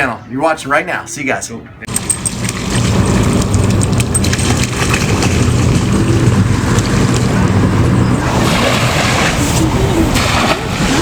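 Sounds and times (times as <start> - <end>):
car engine running: 1.9 - 8.6
wind on microphone: 2.4 - 11.0.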